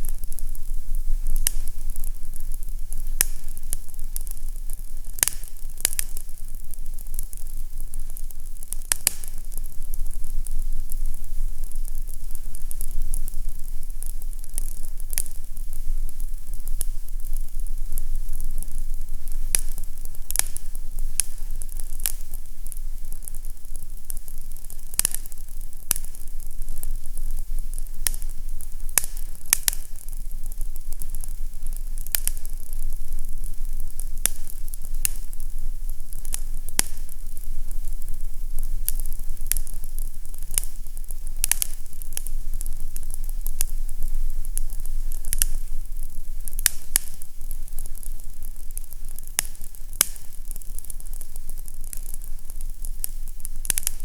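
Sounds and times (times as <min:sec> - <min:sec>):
fire crackling and popping: 0:00.0 - 0:54.0
soft hiss: 0:00.0 - 0:54.0.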